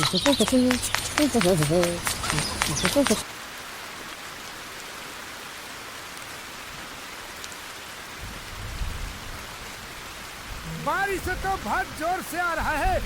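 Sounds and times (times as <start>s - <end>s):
heavy rain hissing: 0.0s - 13.0s
low rumble of thunder: 8.2s - 9.8s.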